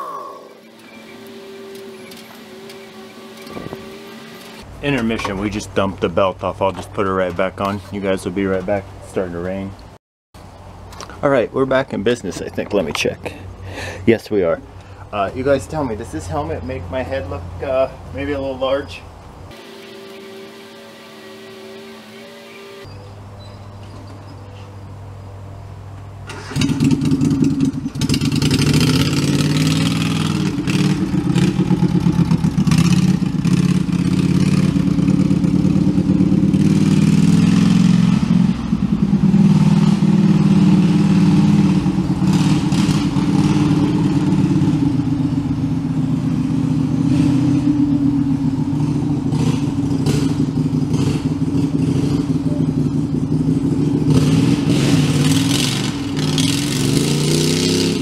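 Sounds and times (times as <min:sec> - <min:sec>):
tractor engine revving: 0:00.0 - 0:07.5, 0:19.5 - 0:22.9, 0:26.2 - 0:58.0.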